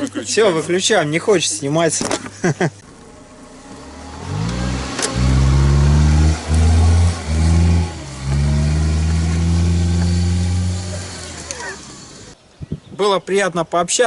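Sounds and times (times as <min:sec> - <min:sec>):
car engine running: 0:02.8 - 0:12.4.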